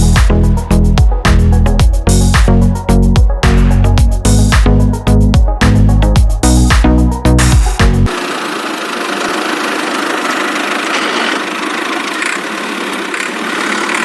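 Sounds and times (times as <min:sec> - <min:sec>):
small motor buzzing: 0:08.1 - 0:14.0.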